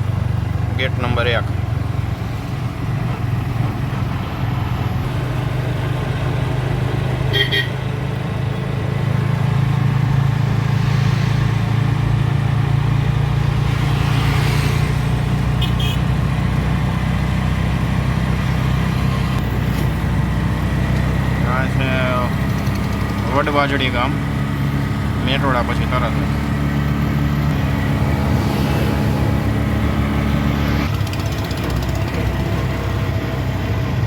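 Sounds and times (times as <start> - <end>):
traffic passing: 0.0 - 34.0
vehicle driving drone: 0.0 - 34.0
car horn toots: 7.3 - 7.8, 15.5 - 16.2.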